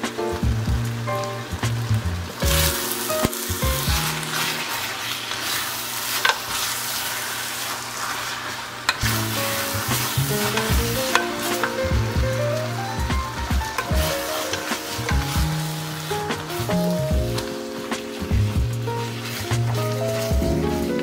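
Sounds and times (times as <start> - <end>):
background music: 0.0 - 4.8, 9.0 - 21.0
noodles sizzling in frying pan: 0.8 - 21.0.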